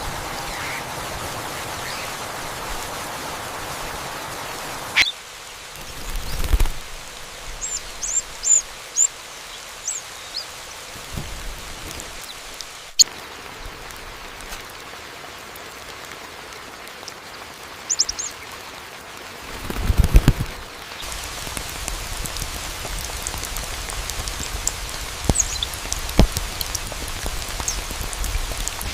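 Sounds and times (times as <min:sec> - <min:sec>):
steady hiss: 0:00.0 - 0:14.8, 0:19.5 - 0:28.9
small bird chirping: 0:05.0 - 0:05.2, 0:07.5 - 0:10.6, 0:17.9 - 0:18.4, 0:24.6 - 0:25.8.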